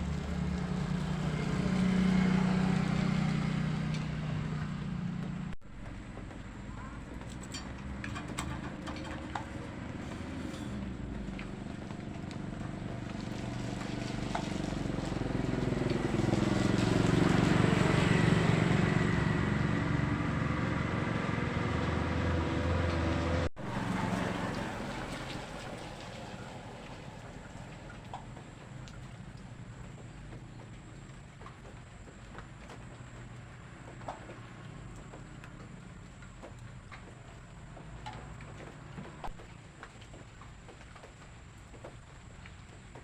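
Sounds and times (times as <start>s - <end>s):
boat engine running: 0.0s - 31.3s.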